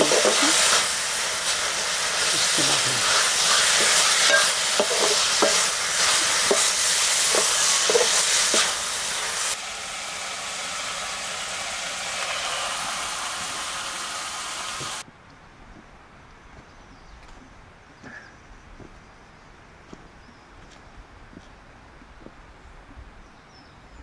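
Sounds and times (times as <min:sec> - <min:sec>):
food sizzling in hot oil: 0:00.0 - 0:15.0
stirring scrapes and knocks: 0:03.8 - 0:06.7, 0:07.3 - 0:08.7.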